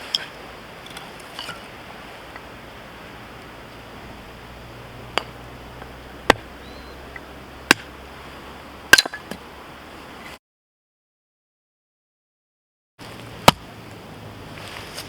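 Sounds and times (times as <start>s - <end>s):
hatchet chopping firewood: 5.0s - 8.0s, 8.9s - 9.4s, 13.3s - 13.7s.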